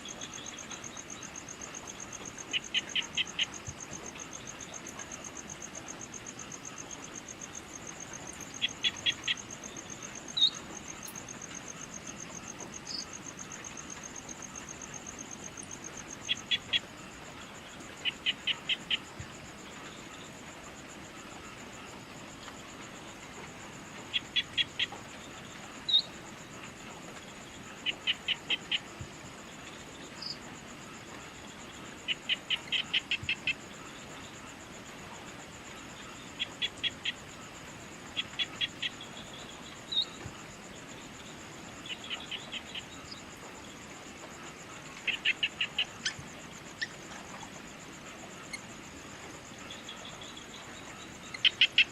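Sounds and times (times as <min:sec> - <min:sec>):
high pulsing insect trill: 0:00.0 - 0:51.9.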